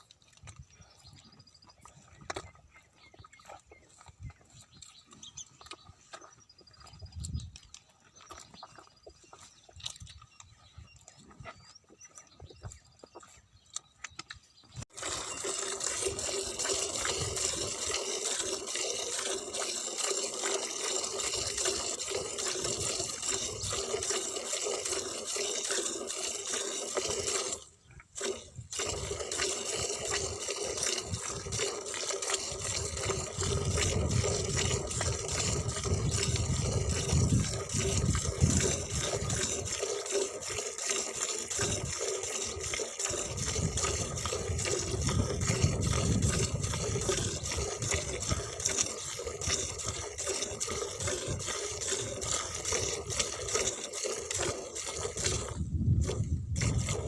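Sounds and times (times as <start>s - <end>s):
liquid pouring into a container: 14.9s - 57.0s.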